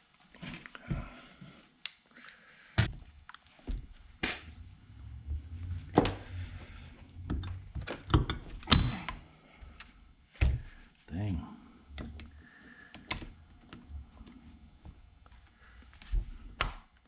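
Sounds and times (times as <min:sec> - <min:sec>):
low handling rumble: 0:03.7 - 0:10.2.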